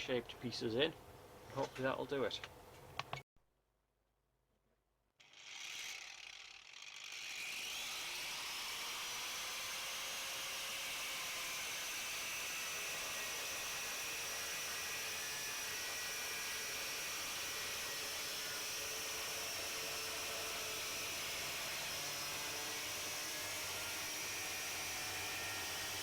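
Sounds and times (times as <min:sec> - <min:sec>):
angle grinder whining: 0:05.2 - 0:26.0.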